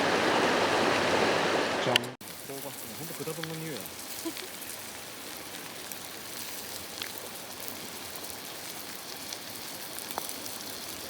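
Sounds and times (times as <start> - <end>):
meat sizzling on a grill: 2.2 - 11.0.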